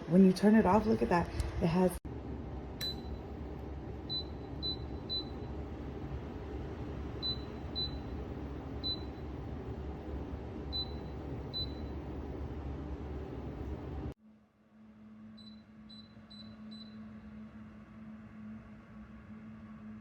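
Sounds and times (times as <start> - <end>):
heater humming: 0.0 - 14.2.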